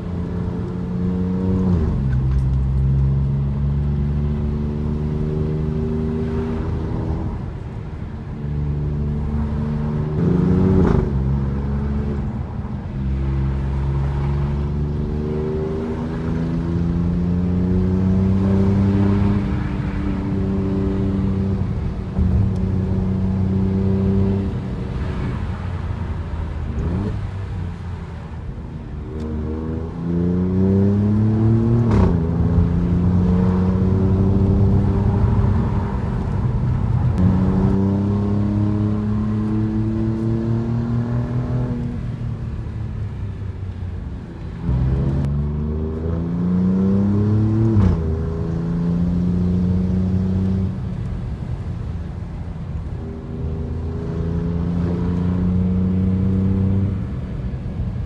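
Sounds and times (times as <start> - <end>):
car engine accelerating: 29.1 - 51.9, 52.7 - 58.0.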